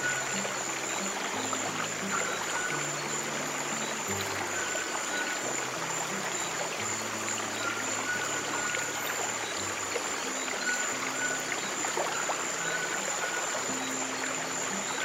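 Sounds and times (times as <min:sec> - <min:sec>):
stream water flowing: 0:00.0 - 0:15.0.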